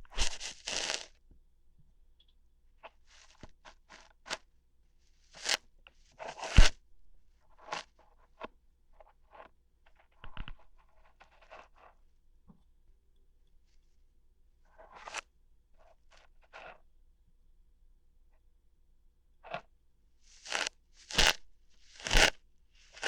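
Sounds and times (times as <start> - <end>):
crackly scratching and tearing: 0.1 - 1.1, 5.3 - 6.8, 9.2 - 12.0, 14.9 - 15.3, 20.3 - 23.0.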